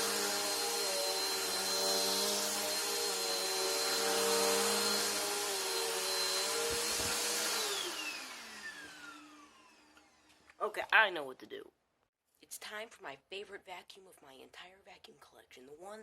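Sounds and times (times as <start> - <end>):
vacuum cleaner running with high whine: 0.0 - 10.3.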